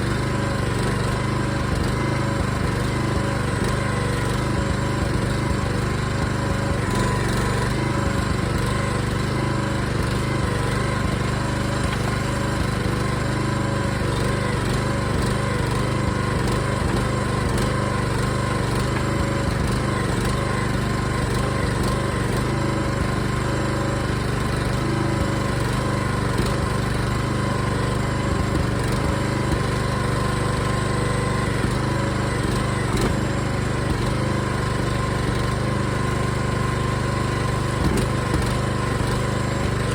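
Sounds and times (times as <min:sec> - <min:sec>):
backhoe engine running: 0:00.0 - 0:39.9.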